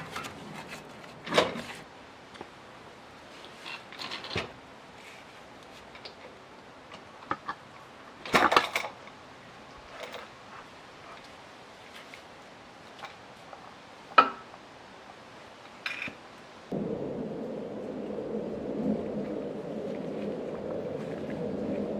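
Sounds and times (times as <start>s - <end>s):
tools and metal parts clinking: 8.2s - 9.1s.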